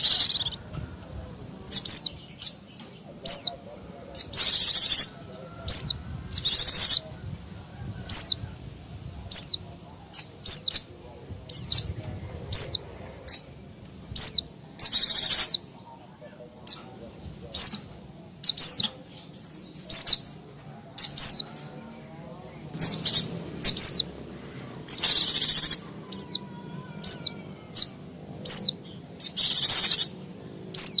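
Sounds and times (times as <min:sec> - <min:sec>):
bird chirping high and sharp: 0:00.0 - 0:00.6, 0:01.6 - 0:03.5, 0:04.1 - 0:05.1, 0:05.7 - 0:08.4, 0:09.3 - 0:10.9, 0:11.5 - 0:13.5, 0:14.2 - 0:15.8, 0:17.5 - 0:20.3, 0:21.0 - 0:21.6, 0:22.8 - 0:24.1, 0:24.9 - 0:31.0
bird harsh chattering: 0:00.0 - 0:00.6, 0:01.7 - 0:07.0, 0:09.2 - 0:10.9, 0:11.5 - 0:13.5, 0:14.2 - 0:15.9, 0:17.5 - 0:20.3, 0:21.0 - 0:21.5, 0:22.8 - 0:24.2, 0:24.8 - 0:31.0.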